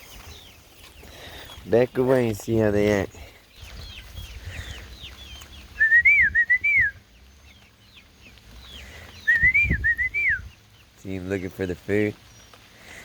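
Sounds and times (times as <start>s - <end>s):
chicks peeping: 0.0s - 13.0s
person whistling a call: 5.8s - 7.0s, 9.3s - 10.4s.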